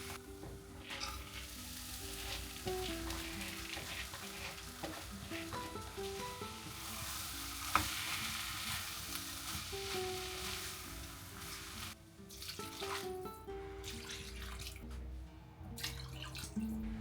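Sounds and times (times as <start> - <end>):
food sizzling in a frying pan: 0.0 - 13.3
slow background music: 0.0 - 17.0.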